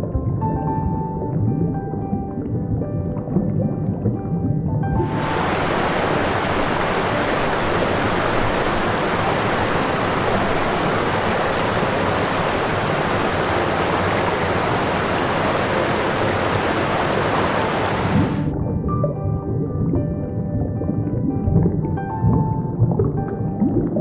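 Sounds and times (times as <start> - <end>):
steady rushing noise: 5.0 - 18.5.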